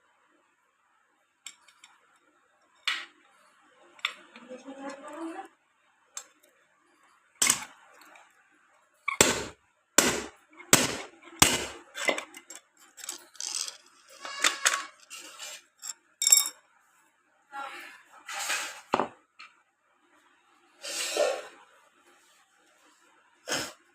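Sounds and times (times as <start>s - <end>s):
metal parts clinking and rattling: 11.9s - 16.6s.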